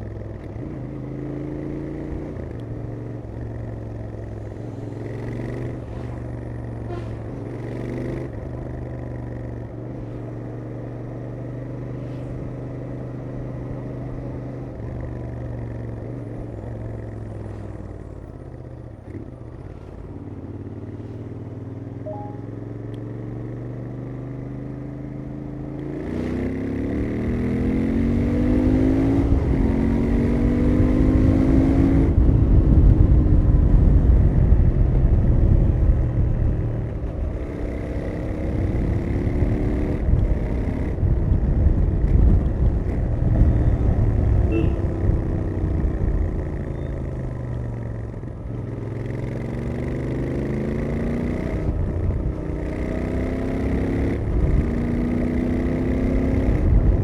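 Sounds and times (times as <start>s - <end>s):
wind and road noise: 0.0s - 57.0s
motorcycle exhaust revving: 37.1s - 57.0s.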